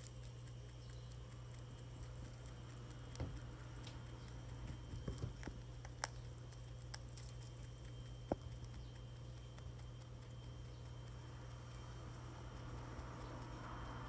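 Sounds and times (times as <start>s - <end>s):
steady low hum: 0.0s - 14.0s
rabbit feet tapping on hard surface: 2.0s - 6.2s.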